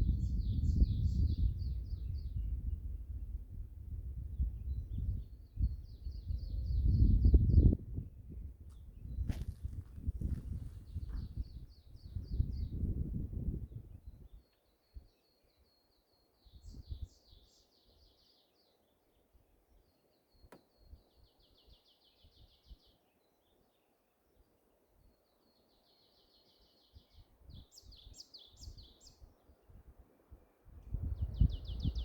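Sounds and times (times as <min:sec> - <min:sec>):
wind gusts on microphone: 0:00.0 - 0:14.4, 0:16.6 - 0:17.2, 0:30.7 - 0:32.0
faint songbird song: 0:00.0 - 0:32.0.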